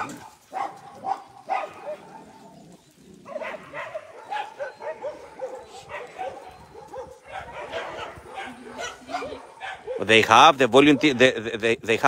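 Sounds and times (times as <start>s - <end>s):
dogs barking and yipping: 0.0s - 11.6s.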